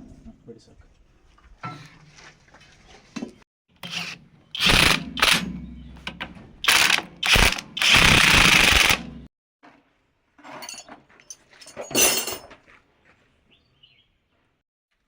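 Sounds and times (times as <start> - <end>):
power tool bursts: 3.8 - 9.2.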